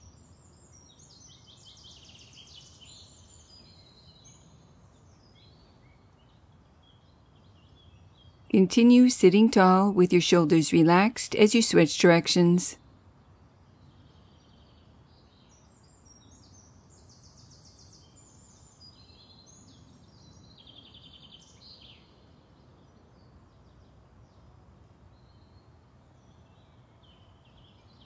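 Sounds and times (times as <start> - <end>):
small birds chirping and trilling: 0.0 - 10.3, 13.2 - 24.5
low steady background hum: 0.0 - 28.0.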